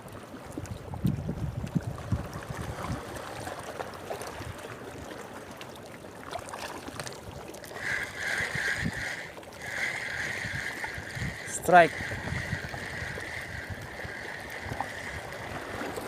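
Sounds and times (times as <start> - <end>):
wind rumbling on microphone: 0.0 - 5.1, 7.0 - 16.0
water lapping at shore: 0.0 - 16.0.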